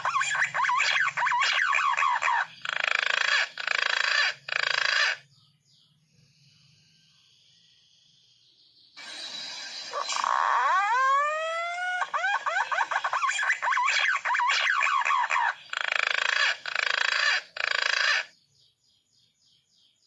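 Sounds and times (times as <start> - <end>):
harsh rasping pigeon calls: 0.0 - 5.2, 9.9 - 18.3.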